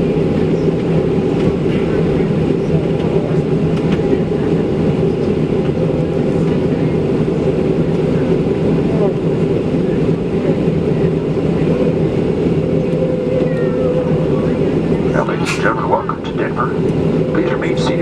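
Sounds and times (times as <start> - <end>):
jet engines idling hum: 0.0 - 18.0
cabin air rush: 9.4 - 18.0.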